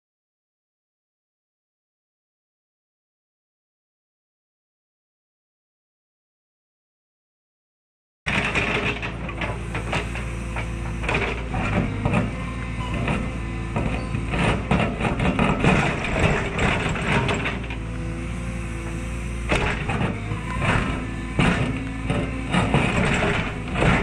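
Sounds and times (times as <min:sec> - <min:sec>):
excavator diesel engine under load: 0:08.3 - 0:24.0.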